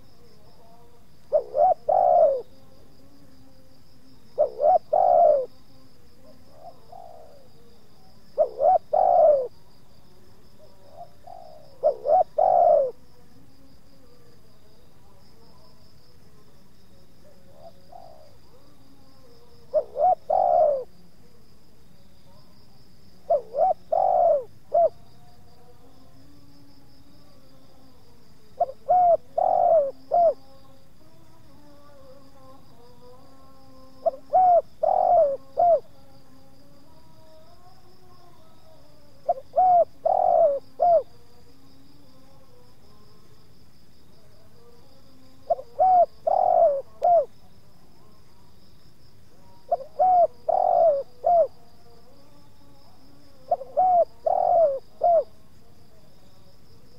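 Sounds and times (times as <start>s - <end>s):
doves cooing: 1.3s - 2.6s, 4.4s - 5.6s, 6.2s - 7.6s, 8.4s - 9.6s, 10.8s - 13.0s, 17.5s - 18.7s, 19.7s - 20.9s, 23.2s - 25.0s, 28.6s - 30.4s, 34.0s - 35.9s, 39.2s - 41.2s, 45.5s - 47.3s, 49.7s - 51.6s, 53.4s - 55.3s
high insect buzz: 17.8s - 56.9s.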